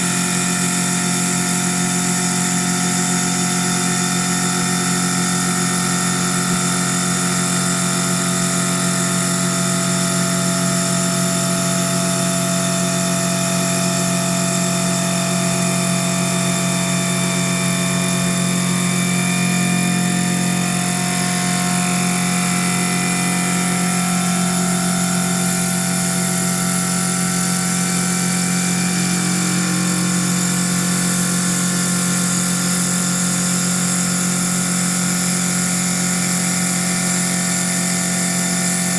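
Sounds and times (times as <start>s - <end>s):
wood lathe running: 17.4s - 38.9s.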